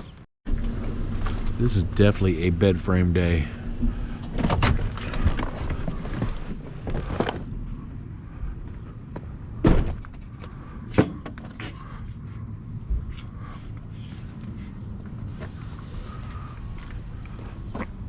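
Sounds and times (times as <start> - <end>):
steady low rumble: 0.5 - 18.0
sharp knocks and thuds: 9.2 - 11.8.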